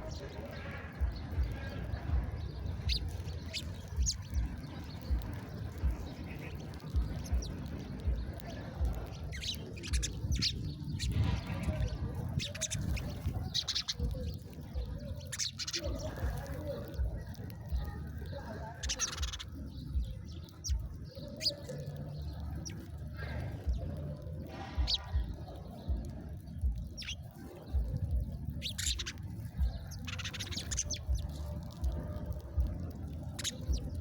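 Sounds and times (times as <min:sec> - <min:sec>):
songbirds chirping: 0:00.0 - 0:34.0
low thuds: 0:00.9 - 0:15.0.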